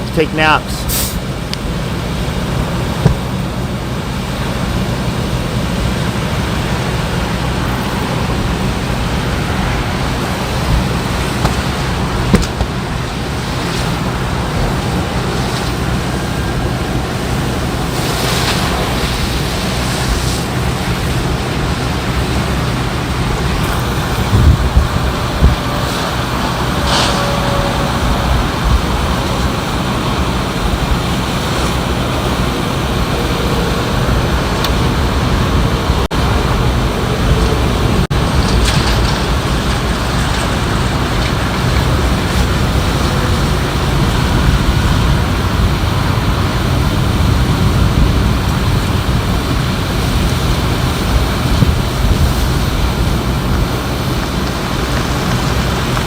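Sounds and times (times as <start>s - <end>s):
highway traffic rushing: 0.0s - 56.0s
wind: 0.0s - 56.0s
low thumps: 2.8s - 3.7s
short knocks or pops: 3.0s - 3.3s.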